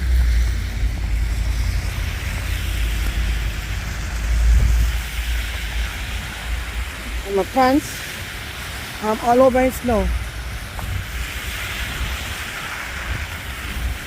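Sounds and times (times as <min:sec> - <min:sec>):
street noise hiss: 0:00.0 - 0:14.0
wind buffeting microphone: 0:00.0 - 0:14.0.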